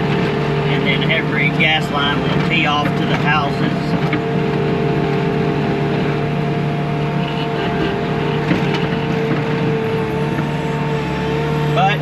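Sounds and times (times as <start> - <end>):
diesel engine droning with whine: 0.0 - 12.0.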